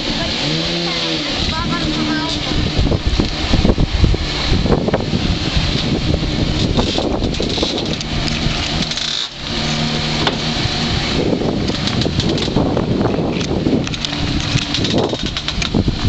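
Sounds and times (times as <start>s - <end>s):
car engine running loudly: 0.0s - 16.0s.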